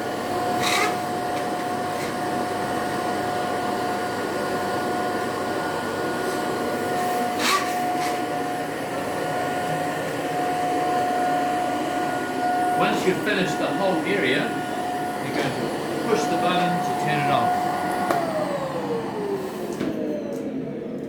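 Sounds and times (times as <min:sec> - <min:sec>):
vacuum cleaner whining: 0:00.0 - 0:21.0.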